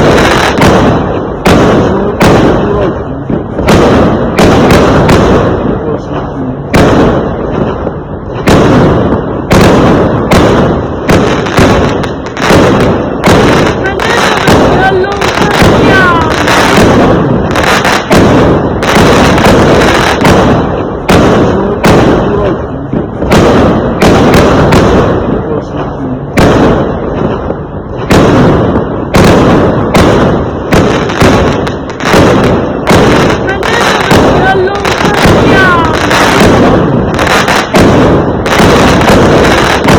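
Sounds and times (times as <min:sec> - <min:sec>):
fireworks bangs: 0:00.0 - 0:39.9
fireworks rumble and crackle: 0:00.0 - 0:39.9.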